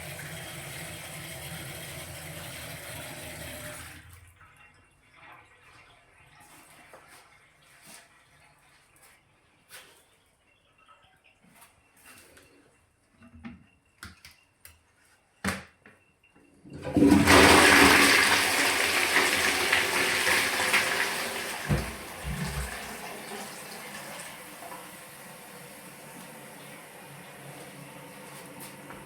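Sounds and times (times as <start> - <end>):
toilet flushing water rush: 0.0 - 4.3, 16.7 - 29.0.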